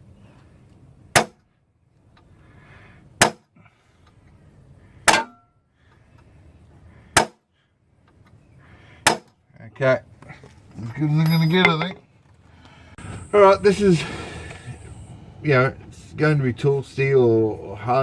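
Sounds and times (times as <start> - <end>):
hammer striking metal punch: 5.1 - 5.5.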